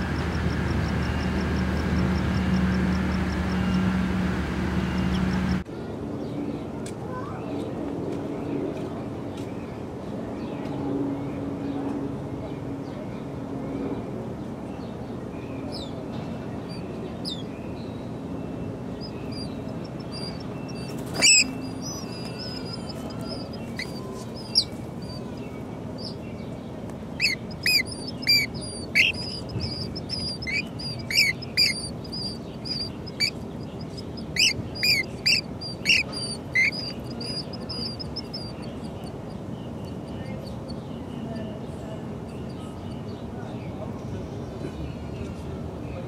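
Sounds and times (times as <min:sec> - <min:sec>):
low background hum: 0:00.0 - 0:46.0
bird calling sharply: 0:19.0 - 0:25.3, 0:27.2 - 0:38.7
thin high steady peeping: 0:27.2 - 0:40.8.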